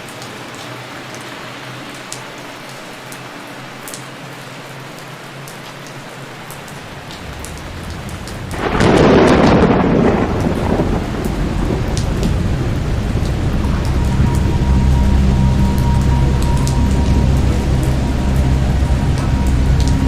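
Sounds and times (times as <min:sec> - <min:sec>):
rain falling in a forest: 0:00.0 - 0:20.0
thunder rumble: 0:06.8 - 0:20.0.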